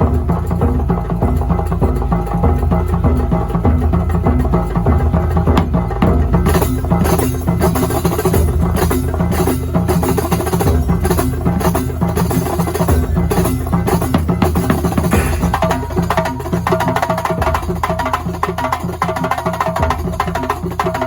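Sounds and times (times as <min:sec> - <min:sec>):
deep bass beat: 0:00.0 - 0:16.6
loud percussion music: 0:00.0 - 0:21.0.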